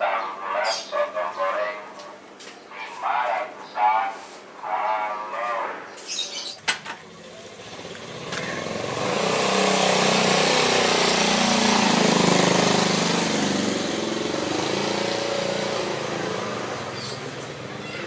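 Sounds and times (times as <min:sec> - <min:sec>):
vehicle engine running: 0:06.6 - 0:18.0.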